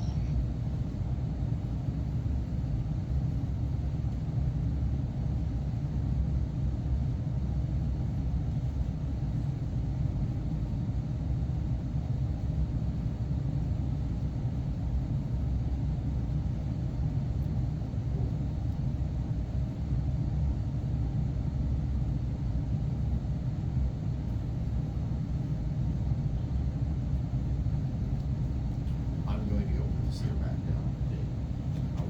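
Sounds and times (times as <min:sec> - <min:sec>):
steady low rumble: 0:11.6 - 0:32.0.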